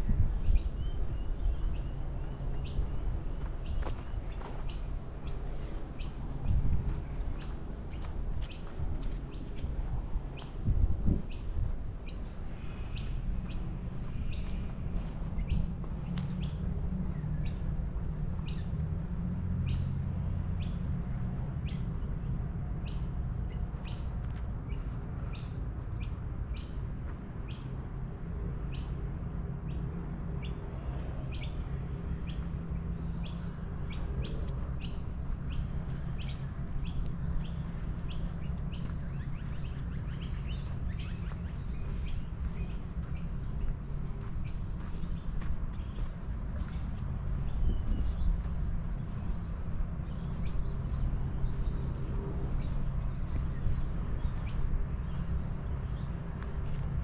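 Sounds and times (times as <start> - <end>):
steady low rumble: 0.0 - 27.4, 28.1 - 57.0
small birds chirping: 0.1 - 18.8, 31.2 - 57.0.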